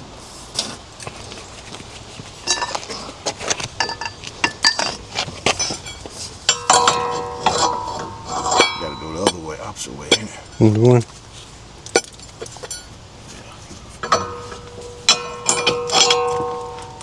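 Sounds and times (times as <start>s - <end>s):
metal hand tools clinking: 3.8s - 11.0s, 11.9s - 13.0s, 13.9s - 17.0s
ringing metal knocks: 3.8s - 11.0s, 11.9s - 13.0s, 13.9s - 17.0s.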